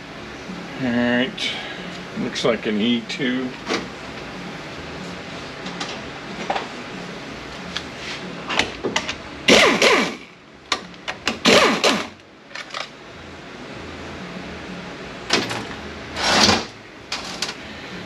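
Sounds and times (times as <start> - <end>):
loud mechanical bursts: 9.5 - 10.3, 11.4 - 12.2, 16.2 - 16.8.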